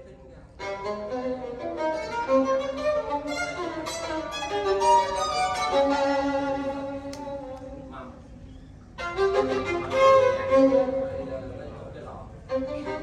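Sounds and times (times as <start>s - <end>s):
violin melody over loudspeakers: 0.6s - 7.9s, 9.0s - 11.4s, 12.4s - 13.0s.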